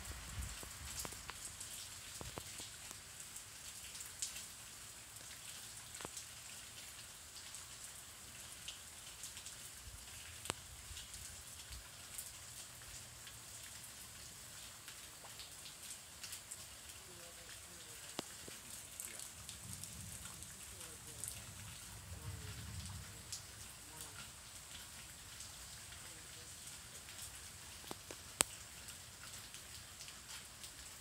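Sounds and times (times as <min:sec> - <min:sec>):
rain falling: 0:00.0 - 0:31.0
sharp drips and taps: 0:00.6 - 0:01.4, 0:02.1 - 0:03.0, 0:05.3 - 0:06.3, 0:14.8 - 0:16.4, 0:17.2 - 0:30.8.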